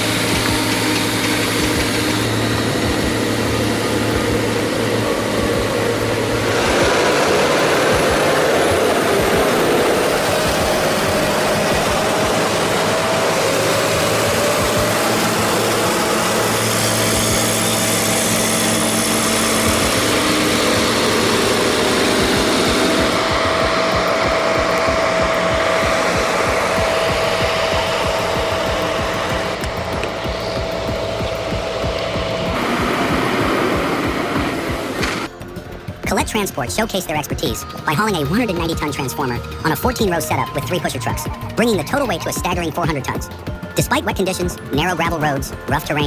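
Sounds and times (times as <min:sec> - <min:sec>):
road and wind noise: 0:00.0 - 0:36.0
truck engine running: 0:00.0 - 0:46.0.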